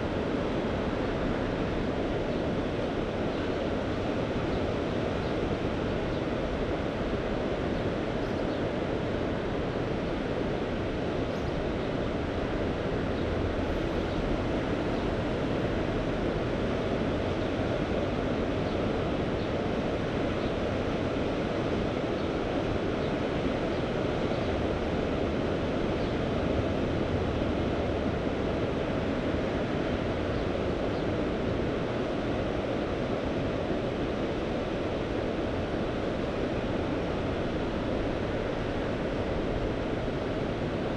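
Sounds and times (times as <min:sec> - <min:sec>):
wind: 0:00.0 - 0:40.9.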